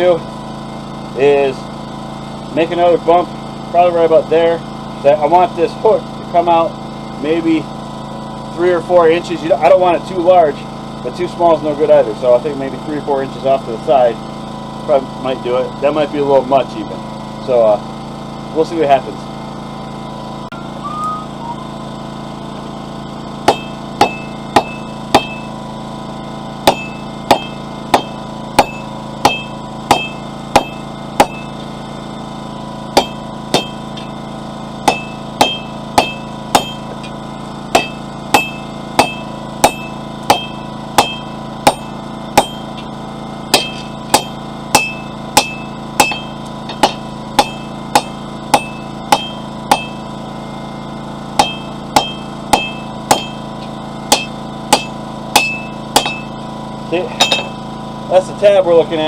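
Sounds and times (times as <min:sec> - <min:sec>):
generator humming: 0:00.0 - 0:59.0
hammer ringing on steel: 0:23.5 - 0:25.6, 0:26.6 - 0:31.5, 0:33.0 - 0:34.1, 0:34.8 - 0:36.9, 0:37.7 - 0:42.8, 0:43.5 - 0:50.1, 0:51.4 - 0:53.5, 0:54.1 - 0:56.4, 0:57.2 - 0:57.6.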